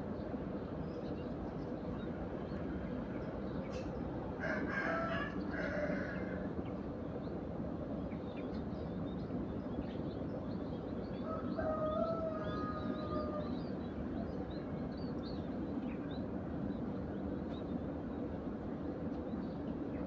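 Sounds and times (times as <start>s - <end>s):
rooster crowing: 4.4s - 6.5s, 11.2s - 13.6s.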